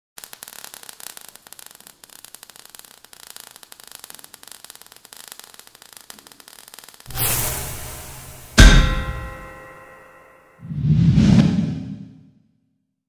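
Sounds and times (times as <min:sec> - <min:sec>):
crackling static: 0:00.2 - 0:07.5.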